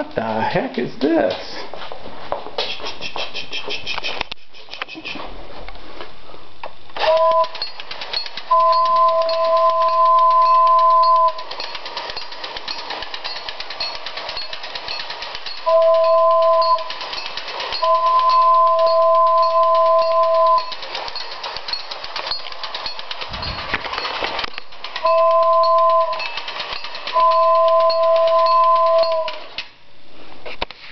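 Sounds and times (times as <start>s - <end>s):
model train two-note horn: 7.0s - 7.6s, 15.7s - 16.9s, 17.8s - 20.7s, 25.1s - 26.2s, 27.2s - 29.4s
model train clicking: 7.0s - 29.7s.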